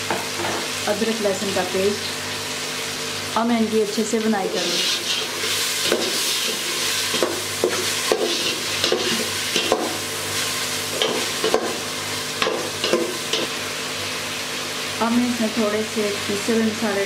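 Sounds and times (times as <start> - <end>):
vegetables sizzling in hot oil: 0.0 - 17.0
metal spatula scraping a pot: 4.6 - 9.9.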